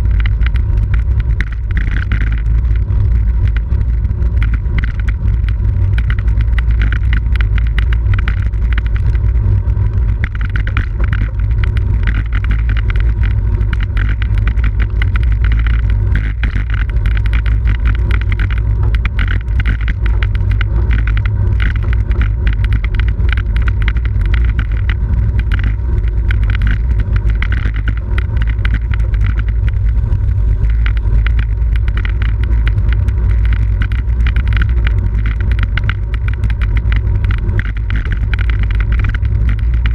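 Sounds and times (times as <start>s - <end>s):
bicycle tyre road noise: 0.0s - 39.9s.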